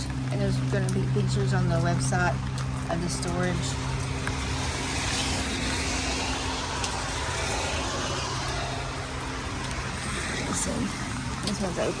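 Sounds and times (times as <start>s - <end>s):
outdoor noise: 0.0s - 12.0s
vehicle engine humming: 0.0s - 12.0s.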